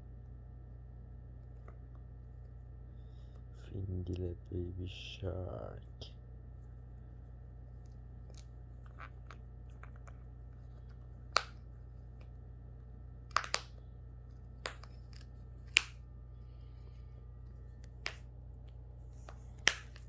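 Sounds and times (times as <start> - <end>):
steady low hum: 0.0 - 20.0
beak cracking and clicking: 13.3 - 13.8.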